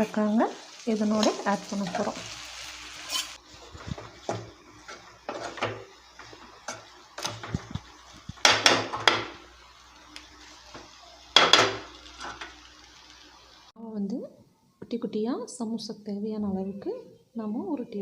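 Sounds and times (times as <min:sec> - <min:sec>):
spoon scraping cookware: 0:03.0 - 0:07.6.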